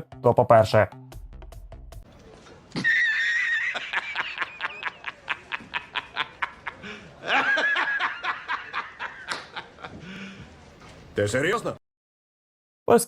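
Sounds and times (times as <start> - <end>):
high-pitched laughter: 2.7 - 9.9.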